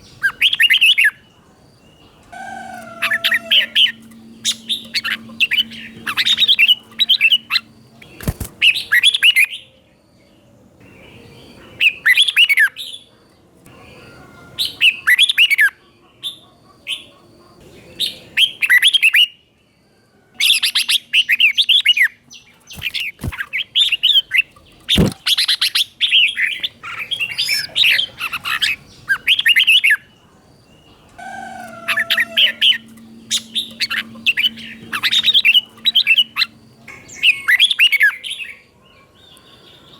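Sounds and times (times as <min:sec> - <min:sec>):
bulbul singing warbled phrases: 0:00.0 - 0:09.8, 0:20.5 - 0:38.7.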